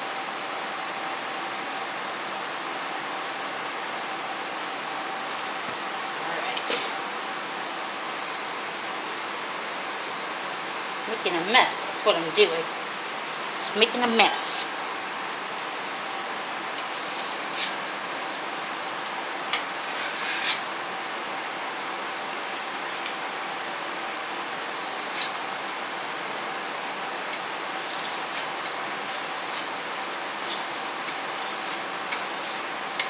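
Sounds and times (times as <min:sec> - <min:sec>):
putty knife scraping wood: 0:16.8 - 0:17.8, 0:27.6 - 0:32.8.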